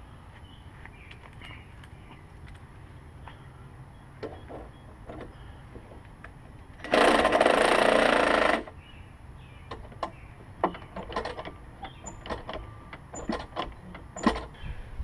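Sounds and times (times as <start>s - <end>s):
light handling clicks and knocks: 9.7s - 14.6s.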